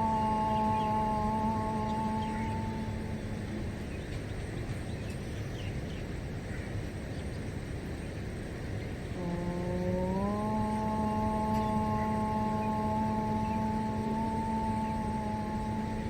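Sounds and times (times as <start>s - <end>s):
person chanting om: 0.0s - 4.3s, 9.1s - 16.0s
outdoor ambience: 0.0s - 16.0s.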